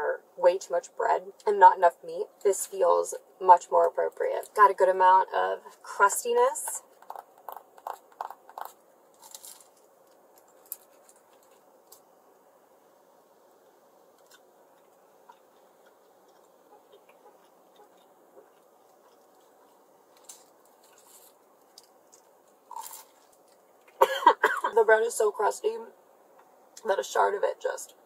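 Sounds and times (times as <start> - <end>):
crunching crusty bread: 6.8 - 12.1, 14.0 - 24.0.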